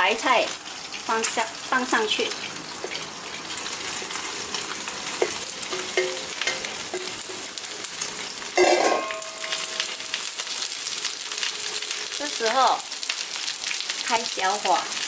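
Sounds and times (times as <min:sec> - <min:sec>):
food sizzling in oil: 0:00.0 - 0:15.0
metallic clatter with ringing: 0:08.6 - 0:10.0.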